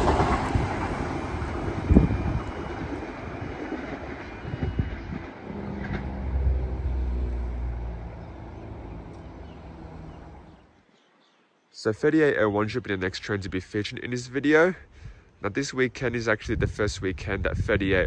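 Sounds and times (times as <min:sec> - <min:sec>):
diesel train passing: 0:00.0 - 0:10.7.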